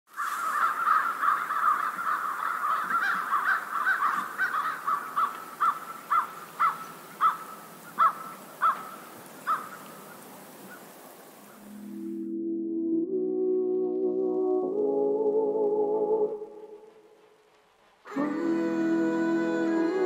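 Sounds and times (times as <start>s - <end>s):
birds calling: 0.1s - 12.1s.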